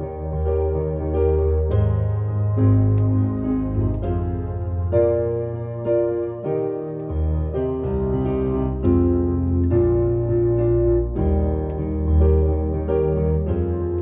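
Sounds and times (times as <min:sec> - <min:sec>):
keyboard chords: 0:00.0 - 0:14.0
low bass notes: 0:00.0 - 0:14.0.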